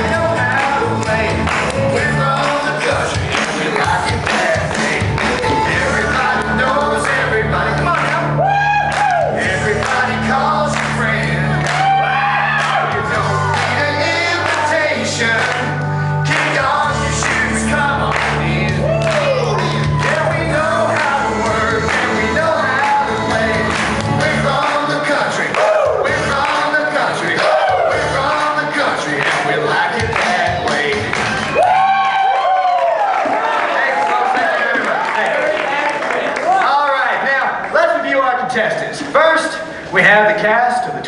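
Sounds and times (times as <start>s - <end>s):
man singing: 0.0s - 31.8s
country backing band: 0.0s - 32.1s.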